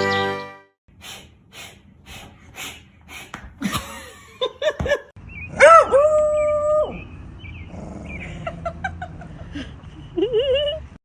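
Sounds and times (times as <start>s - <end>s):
rhythmic breathy huffs: 0.9s - 4.1s.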